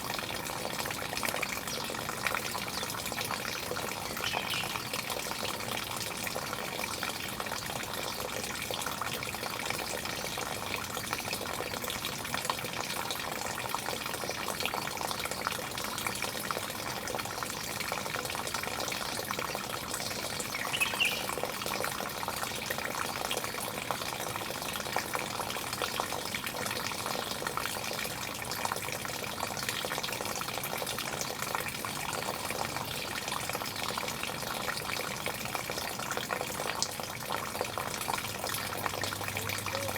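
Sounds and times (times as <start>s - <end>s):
running water splashing: 19.8s - 22.2s.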